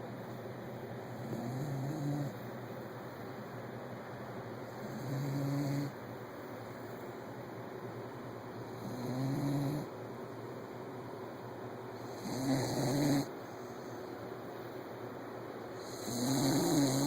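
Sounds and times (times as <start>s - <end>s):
puppy snoring: 1.1s - 2.4s, 4.8s - 6.0s, 8.7s - 9.9s, 12.0s - 13.3s, 15.8s - 17.0s.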